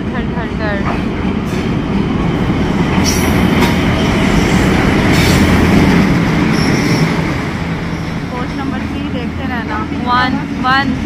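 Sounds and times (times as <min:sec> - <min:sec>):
locomotive engine and wheels rumble: 0:00.0 - 0:11.0.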